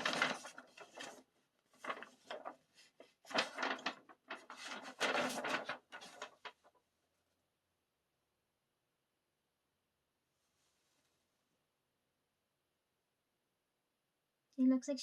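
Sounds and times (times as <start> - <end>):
stiff paper rustling and crinkling: 0.0 - 6.8.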